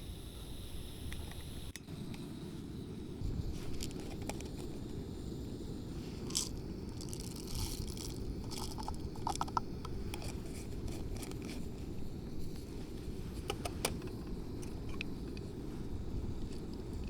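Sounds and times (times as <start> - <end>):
low rumble of wind or surf: 0.0 - 17.0
coffee gear clicks and clinks: 3.6 - 5.0, 6.2 - 11.8, 13.4 - 15.6.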